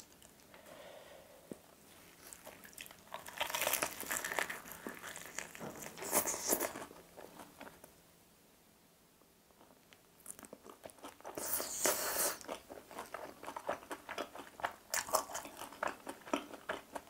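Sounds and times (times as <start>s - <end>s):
crunching of crispy chicken coating: 2.1s - 7.9s, 10.2s - 17.0s.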